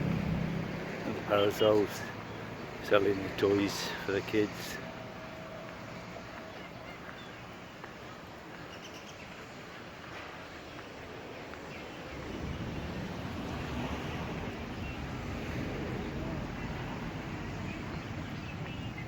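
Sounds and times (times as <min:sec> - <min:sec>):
low rumble: 0:00.0 - 0:01.3.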